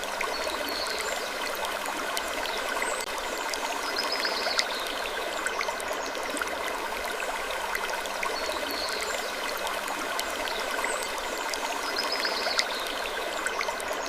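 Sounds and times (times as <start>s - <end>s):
stream-like rushing noise: 0.0s - 1.1s.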